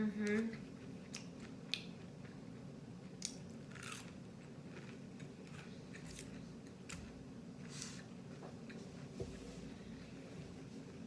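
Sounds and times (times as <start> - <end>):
low steady hum: 0.0 - 11.0
person chewing crunchy food: 3.0 - 7.0.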